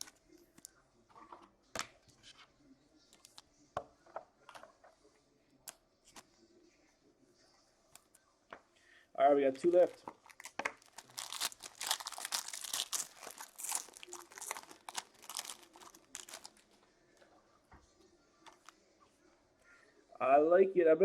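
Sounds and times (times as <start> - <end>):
plastic wrapper tearing and crinkling: 9.8 - 16.8, 18.5 - 18.7.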